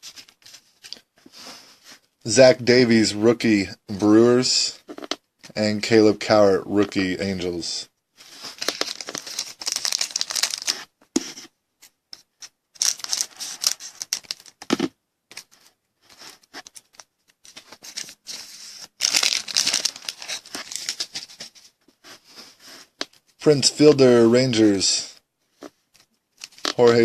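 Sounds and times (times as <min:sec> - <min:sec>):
card pack wrapper tearing and crinkling: 0:08.3 - 0:10.9, 0:12.8 - 0:15.6, 0:16.2 - 0:21.5, 0:26.4 - 0:27.0.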